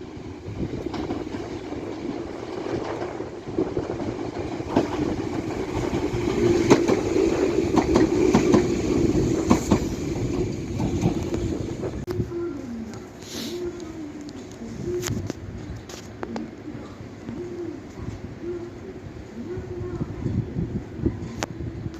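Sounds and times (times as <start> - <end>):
train wheels clacking over rail joints: 0.7 - 11.5.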